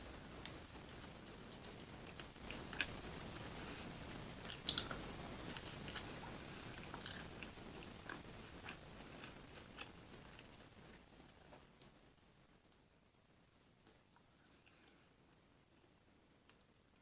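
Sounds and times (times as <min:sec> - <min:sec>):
person chewing: 0:00.8 - 0:03.0, 0:03.8 - 0:11.4.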